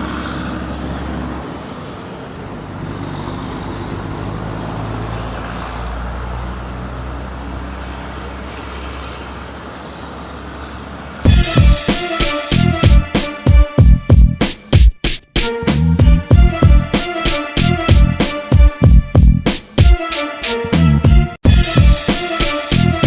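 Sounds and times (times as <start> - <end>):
diesel engine droning: 0.0 - 11.8.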